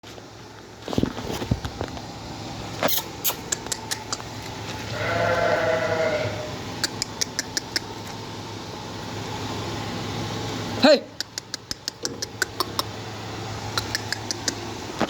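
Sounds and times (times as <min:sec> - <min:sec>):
goat bleating: 0:04.8 - 0:06.6.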